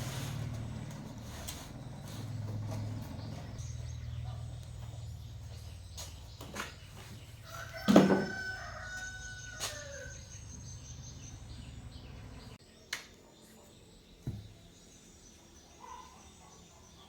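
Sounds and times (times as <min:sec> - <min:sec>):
rooster crowing: 0:07.4 - 0:10.4.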